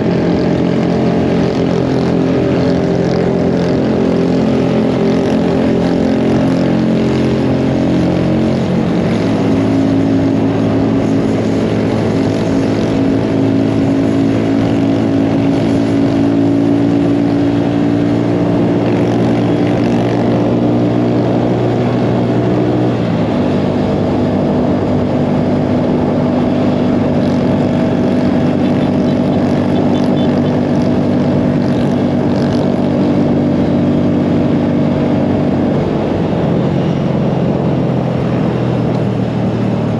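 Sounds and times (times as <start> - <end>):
mini bike engine running: 25.5 - 32.8.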